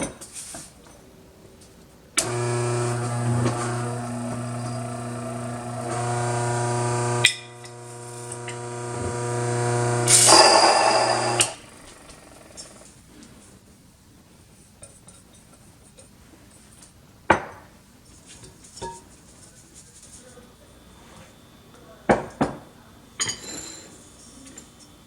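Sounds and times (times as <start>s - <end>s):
grain mill motor hum: 2.2s - 12.9s
grinding noise: 2.2s - 12.9s.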